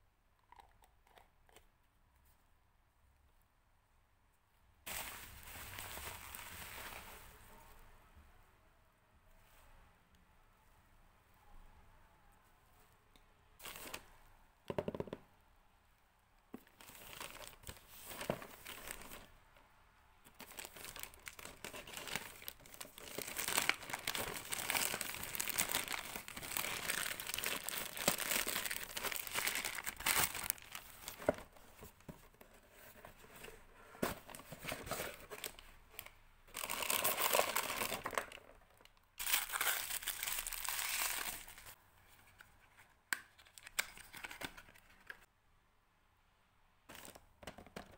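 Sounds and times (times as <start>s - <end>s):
packaging crinkling: 20.3s - 31.4s, 36.5s - 41.8s
packaging tearing: 20.4s - 31.2s, 39.2s - 41.7s.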